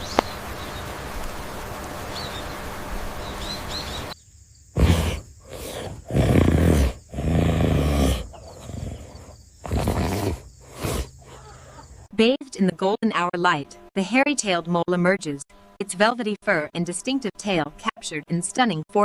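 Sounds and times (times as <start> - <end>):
outdoor background noise: 0.0 - 18.9
faint bird chirps: 2.1 - 4.4
large animal deep calls: 4.8 - 12.1.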